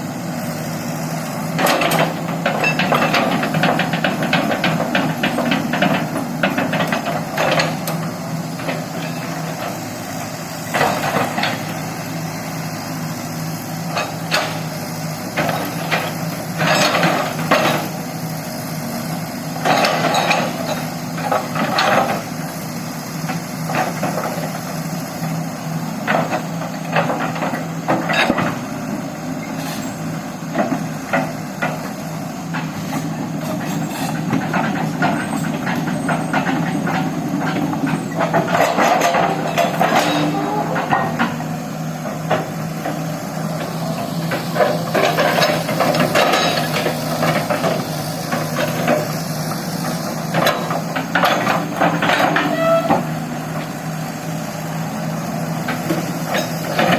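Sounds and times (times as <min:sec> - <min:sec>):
excavator diesel engine running: 0:00.0 - 0:56.9
metallic clanks and knocks: 0:33.6 - 0:41.4.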